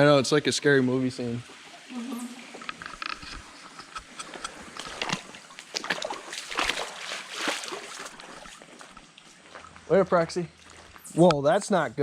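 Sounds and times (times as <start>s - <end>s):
footsteps splashing through water: 3.4s - 11.2s.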